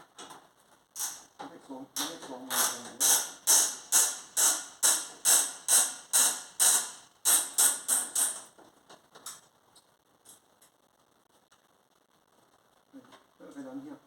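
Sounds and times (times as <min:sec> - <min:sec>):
socket ratchet clicking: 0:02.0 - 0:08.4.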